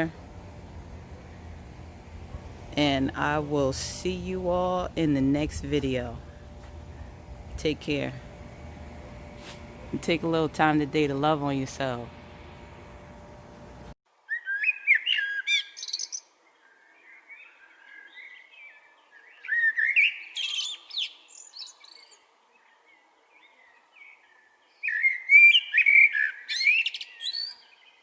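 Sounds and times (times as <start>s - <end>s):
songbird singing: 14.2s - 28.0s.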